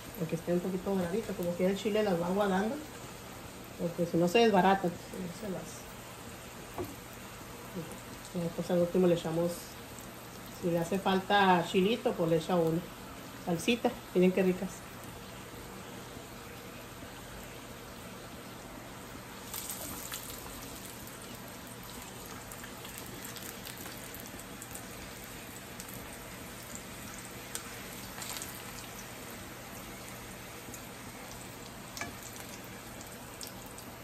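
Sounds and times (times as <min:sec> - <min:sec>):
tortillas sizzling in a skillet: 0:00.0 - 0:34.0
oil crackling: 0:19.4 - 0:29.4.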